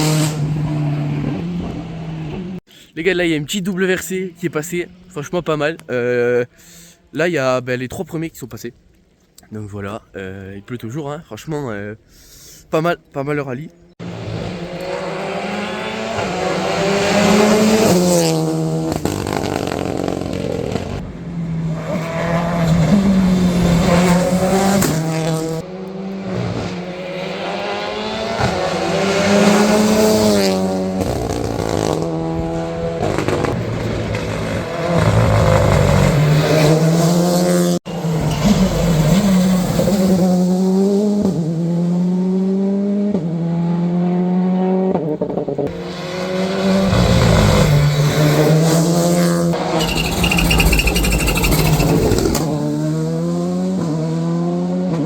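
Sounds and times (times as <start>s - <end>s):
rally car engines revving: 0.0s - 2.6s, 14.0s - 55.0s.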